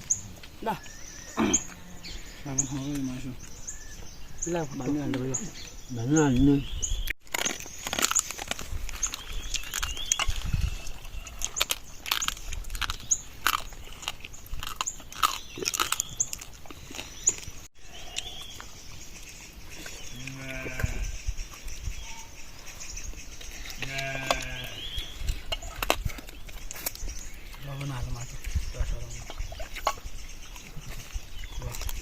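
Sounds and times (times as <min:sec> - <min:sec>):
low animal call: 0:00.0 - 0:04.5, 0:23.5 - 0:25.9.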